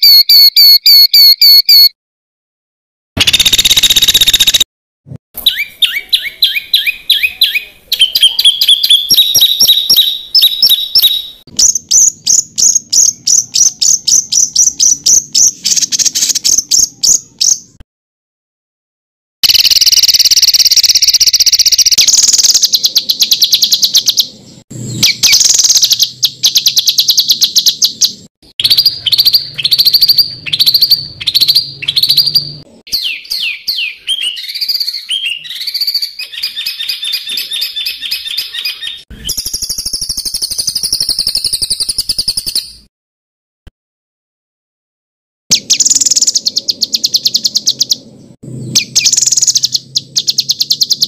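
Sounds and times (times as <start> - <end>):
downward-sweeping bird whistles: 0.0 - 1.9, 5.5 - 17.6, 24.9 - 42.8, 48.7 - 51.0.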